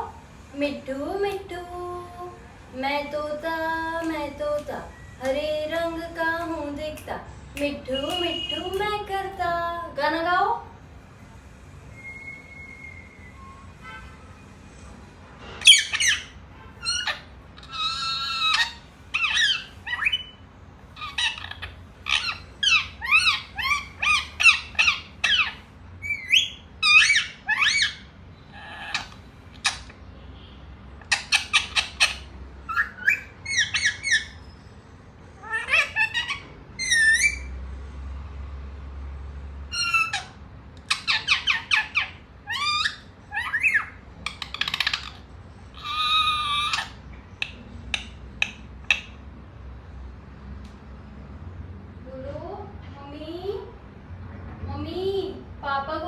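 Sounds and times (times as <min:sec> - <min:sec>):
parrot squawking and chattering: 0:15.6 - 0:30.1, 0:30.9 - 0:37.6, 0:39.6 - 0:49.4.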